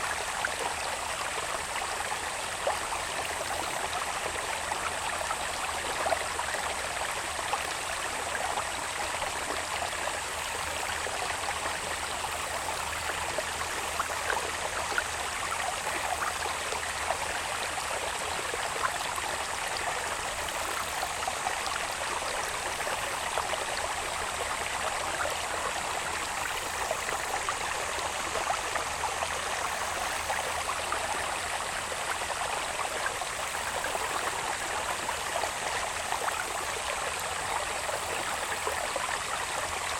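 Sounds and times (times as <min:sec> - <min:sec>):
water channel babbling: 0:00.2 - 0:39.9
insects droning: 0:09.3 - 0:39.9.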